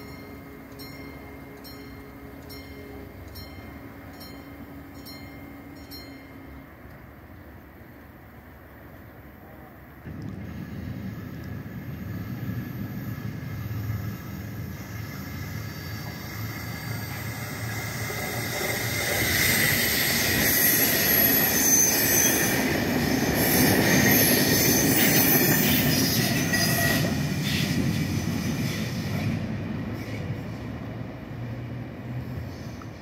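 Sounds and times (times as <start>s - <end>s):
passenger train rolling past: 0.0s - 33.0s
thin high whine: 10.4s - 22.6s.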